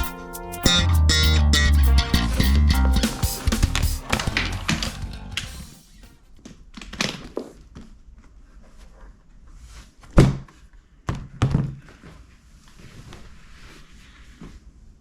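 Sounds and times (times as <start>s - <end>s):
plucked bass note: 0.0s - 5.7s.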